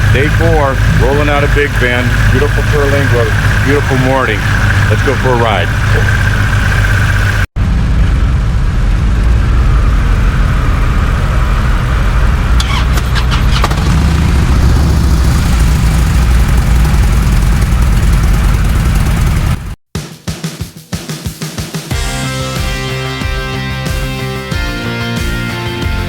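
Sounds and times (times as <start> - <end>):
motorcycle engine running: 0.0 - 19.8.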